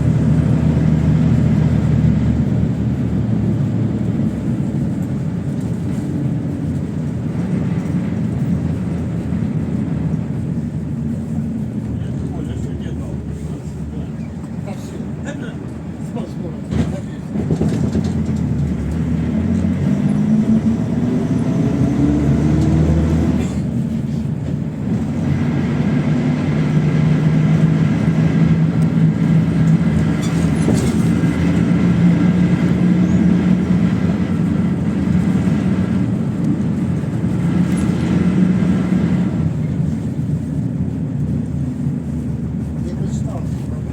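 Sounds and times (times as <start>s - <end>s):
bus engine revving: 0.0s - 43.9s.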